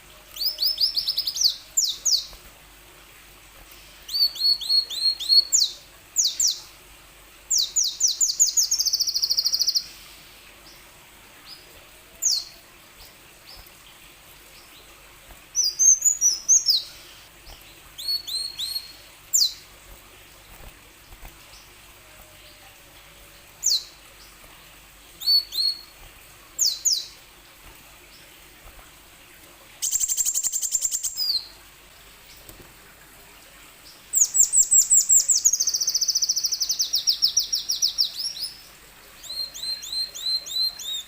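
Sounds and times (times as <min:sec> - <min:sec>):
sunbird singing: 0:00.4 - 0:02.4, 0:07.5 - 0:10.0, 0:15.6 - 0:19.7, 0:34.1 - 0:38.6.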